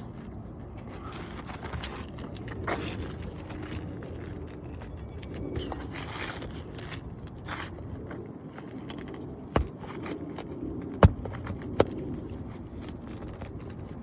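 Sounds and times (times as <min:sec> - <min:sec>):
scraping on roof shingles: 0:05.8 - 0:14.0
sharp tool knocks: 0:09.6 - 0:09.8.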